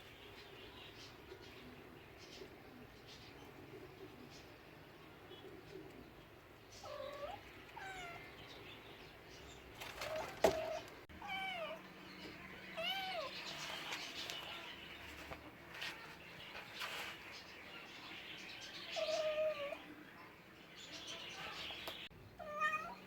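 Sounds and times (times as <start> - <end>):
cat meowing: 11.2 - 11.8, 12.8 - 13.3, 22.4 - 23.0.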